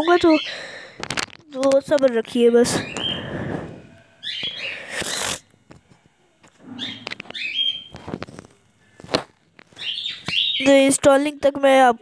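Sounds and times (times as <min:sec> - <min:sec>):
small birds twittering: 0:00.0 - 0:00.8, 0:02.6 - 0:03.5, 0:04.2 - 0:05.1, 0:06.6 - 0:08.0, 0:09.7 - 0:11.0.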